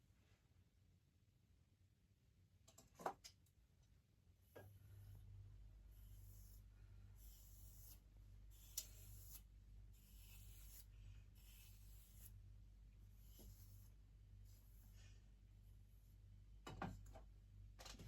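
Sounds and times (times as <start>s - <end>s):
low steady hum: 3.4s - 18.0s
faint rubbing strokes: 4.9s - 12.4s, 13.0s - 15.2s.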